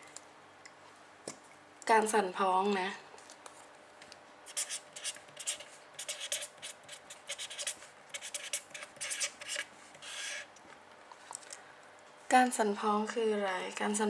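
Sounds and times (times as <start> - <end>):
pen scratching while writing: 4.5 - 10.5.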